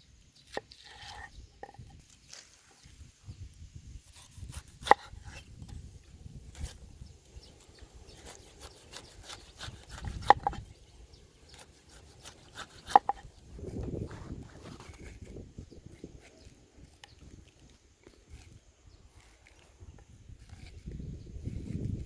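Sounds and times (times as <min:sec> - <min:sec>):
knife scraping board: 0:00.7 - 0:01.8, 0:04.2 - 0:05.4, 0:08.1 - 0:10.6, 0:11.5 - 0:16.5
knife chopping on cutting board: 0:04.2 - 0:05.4, 0:08.6 - 0:10.6, 0:11.5 - 0:13.3.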